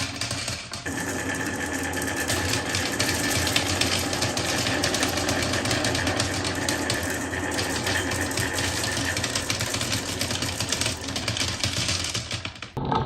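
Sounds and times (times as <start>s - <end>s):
balls rolling on plastic track: 0.0s - 13.0s.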